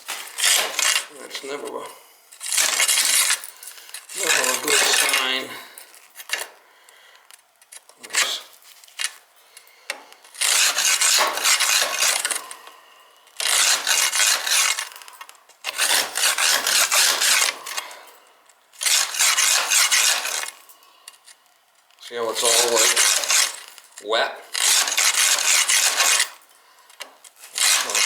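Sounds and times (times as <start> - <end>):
brush scraping soot: 4.0 - 5.5, 27.4 - 28.0.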